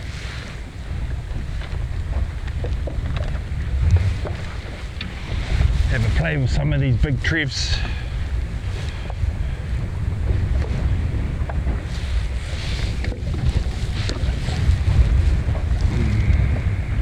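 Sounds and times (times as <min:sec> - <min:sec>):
water splashing against hull: 0:00.0 - 0:17.0
wind buffeting microphone: 0:00.0 - 0:17.0.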